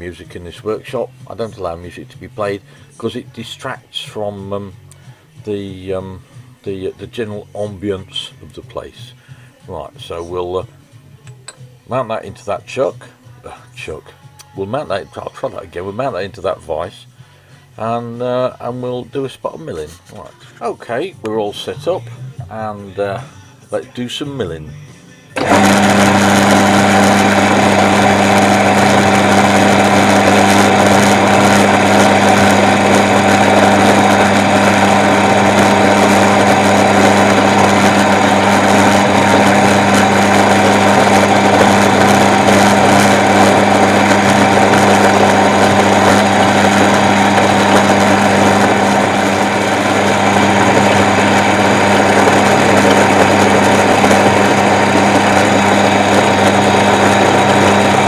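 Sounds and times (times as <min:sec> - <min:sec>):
milling machine motor hum: 0:25.4 - 0:58.0.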